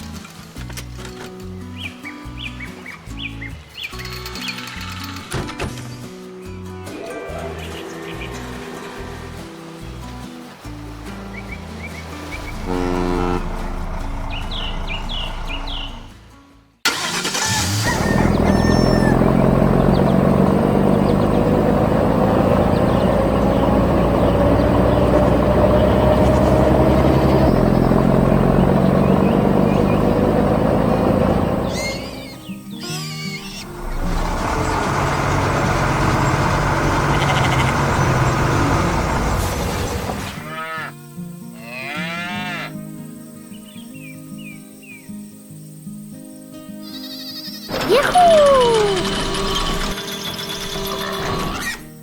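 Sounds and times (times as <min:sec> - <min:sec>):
background music: 0:00.0 - 0:37.3
diesel engine rumbling: 0:07.4 - 0:32.7, 0:33.4 - 0:40.4, 0:47.7 - 0:52.0
sliding wavering calls: 0:47.7 - 0:51.8.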